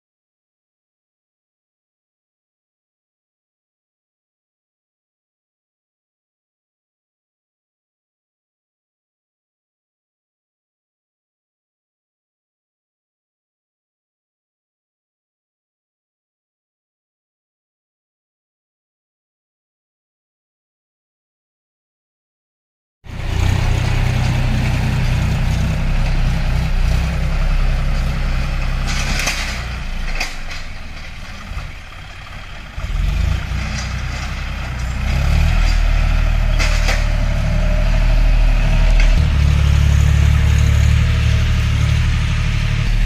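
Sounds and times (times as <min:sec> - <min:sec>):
tractor engine running: 0:23.1 - 0:43.0
sharp knocks and scrapes: 0:28.6 - 0:31.8, 0:32.9 - 0:37.5.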